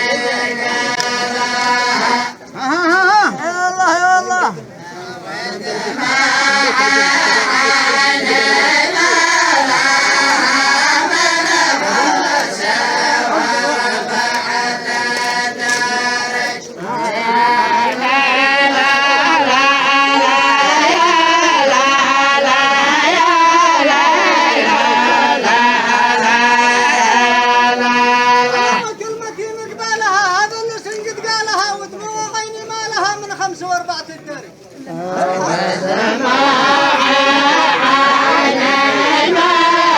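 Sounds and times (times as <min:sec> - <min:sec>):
group of voices chanting: 0:00.0 - 0:29.0, 0:34.8 - 0:39.9.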